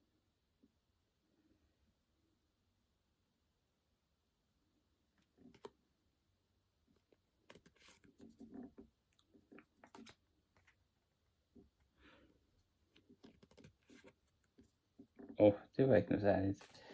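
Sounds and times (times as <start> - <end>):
cards and packaging rustling: 5.2 - 5.8, 7.0 - 10.8, 12.8 - 15.4, 16.5 - 16.9.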